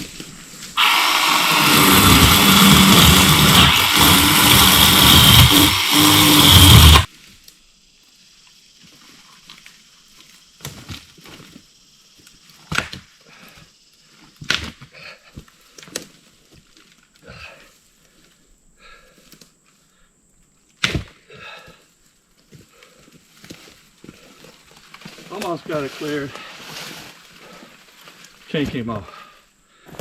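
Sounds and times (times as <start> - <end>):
chainsaw cutting brush: 0.7 - 7.1.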